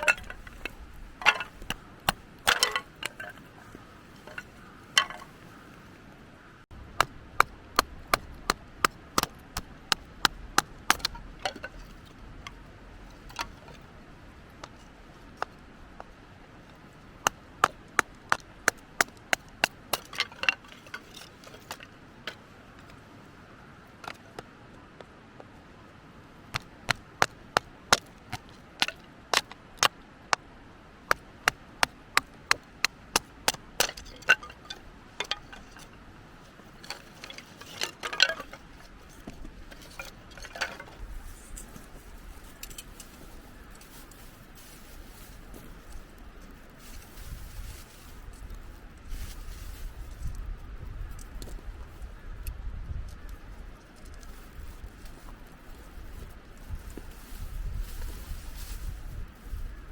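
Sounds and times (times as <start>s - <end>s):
wooden knocks of splitting firewood: 0.0s - 3.4s, 4.2s - 5.3s, 6.7s - 11.8s, 17.2s - 22.4s, 26.6s - 30.4s, 31.1s - 35.9s.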